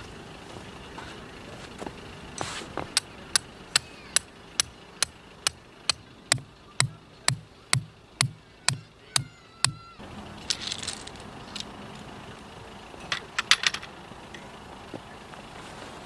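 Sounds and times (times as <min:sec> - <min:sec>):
hammer striking metal tent peg: 0:03.4 - 0:09.9.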